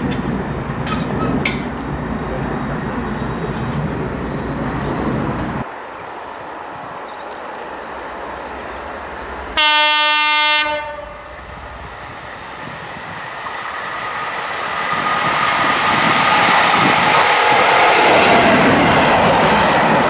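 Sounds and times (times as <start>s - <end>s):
train engine and wheels passing: 0.0s - 20.0s
train horn blast: 9.6s - 11.4s.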